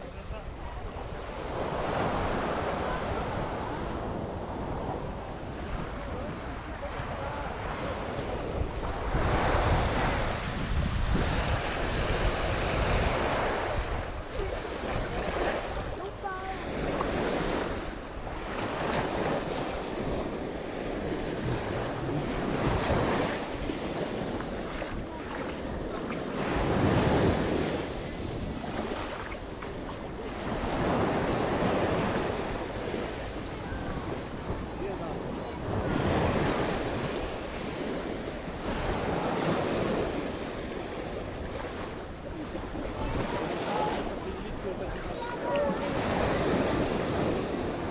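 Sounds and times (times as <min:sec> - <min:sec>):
sea waves washing on beach: 0:00.0 - 0:47.9
wind buffeting microphone: 0:00.0 - 0:47.9.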